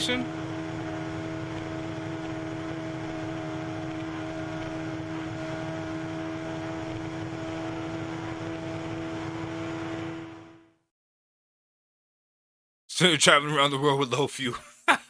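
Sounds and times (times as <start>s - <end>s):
motorcycle engine humming: 0.0s - 10.6s.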